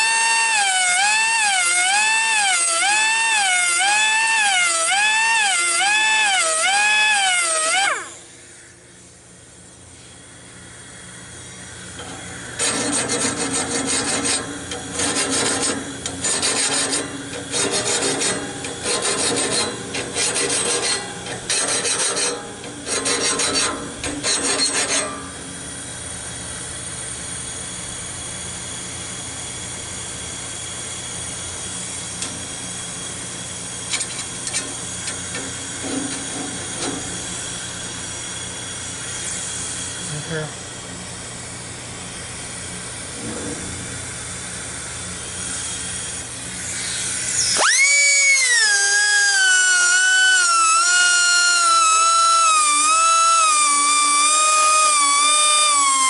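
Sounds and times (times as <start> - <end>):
grinder grinding blade: 12.0 - 25.4, 45.5 - 56.0.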